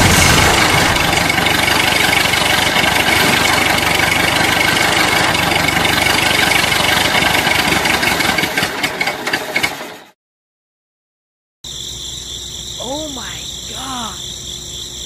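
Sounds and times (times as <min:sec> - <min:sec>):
tractor engine chugging: 0:00.0 - 0:10.0.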